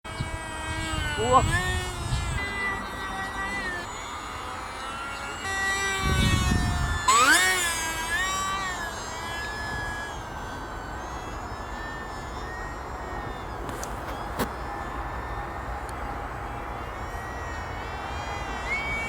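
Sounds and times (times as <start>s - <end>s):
model airplane motor whining: 0.1s - 19.0s.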